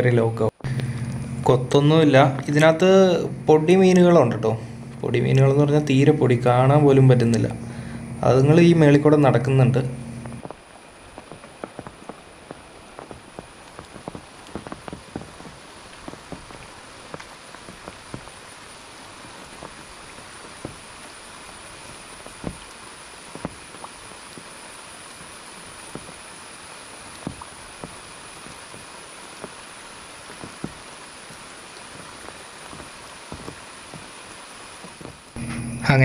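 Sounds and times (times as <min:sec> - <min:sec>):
light rain hissing: 0:00.0 - 0:36.0
soft drips and ticks: 0:10.2 - 0:35.4.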